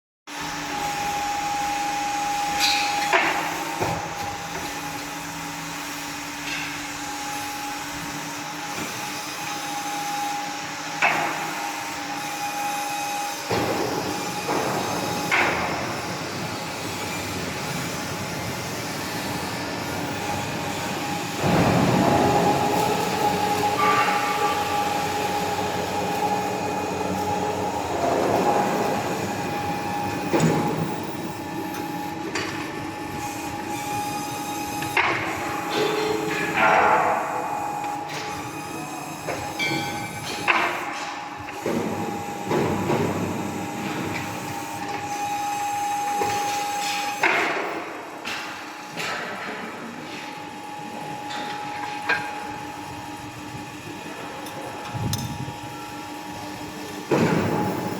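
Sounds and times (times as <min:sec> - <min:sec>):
hydraulic whine: 0:00.3 - 0:48.2
crane knocks and clanks: 0:02.0 - 0:05.5, 0:10.9 - 0:50.3, 0:54.9 - 0:57.9.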